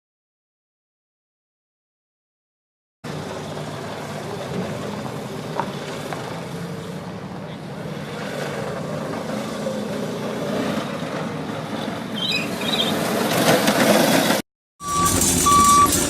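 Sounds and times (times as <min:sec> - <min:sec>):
vehicle noise: 0:03.0 - 0:16.0
vehicle engine running: 0:03.1 - 0:10.3, 0:14.8 - 0:16.0
high electronic beeping: 0:14.8 - 0:16.0.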